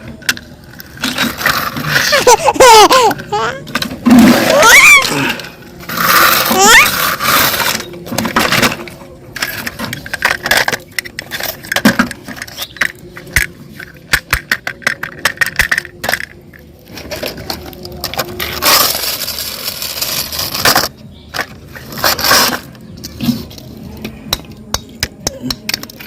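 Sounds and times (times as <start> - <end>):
toys clicking and clattering: 0.0 - 26.0
scraping noise: 4.0 - 10.3.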